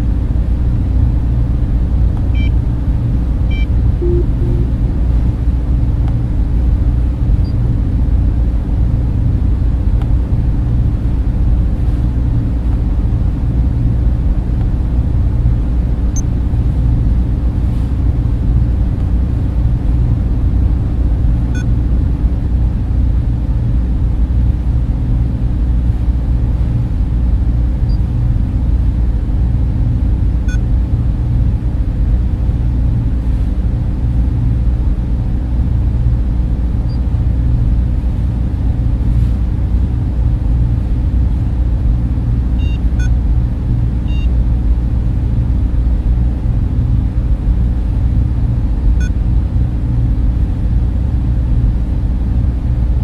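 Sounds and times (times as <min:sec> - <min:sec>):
cooling fans whirring: 0:00.0 - 0:53.0
faint short high blips: 0:03.5 - 0:04.8.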